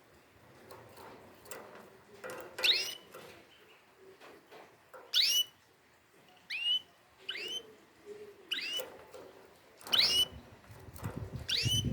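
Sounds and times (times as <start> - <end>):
canary chirping: 2.5 - 3.9, 5.1 - 5.7, 6.3 - 9.1, 9.8 - 10.6, 11.2 - 11.9.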